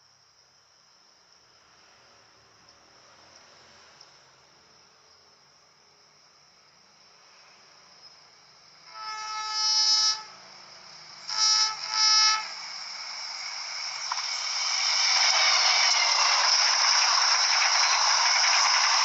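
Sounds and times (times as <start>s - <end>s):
oncoming train noise: 7.6s - 19.0s
train horn blasts: 8.8s - 10.5s, 11.2s - 12.7s.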